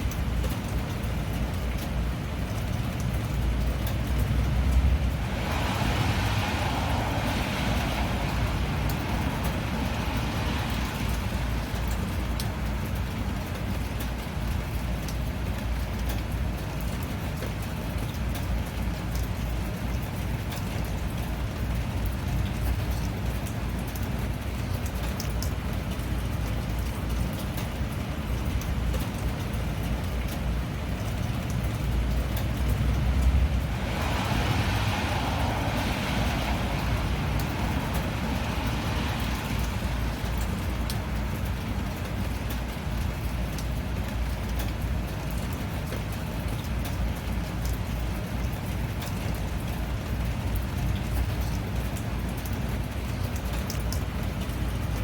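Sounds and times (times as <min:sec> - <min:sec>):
steady rain: 0:00.0 - 0:55.0
rushing hiss: 0:33.6 - 0:40.6.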